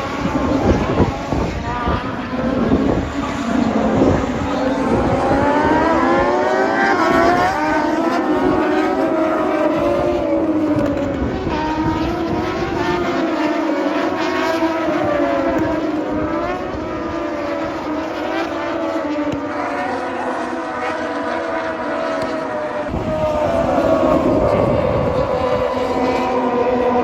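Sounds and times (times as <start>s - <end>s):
racing motorcycle engines revving: 0.0s - 27.0s.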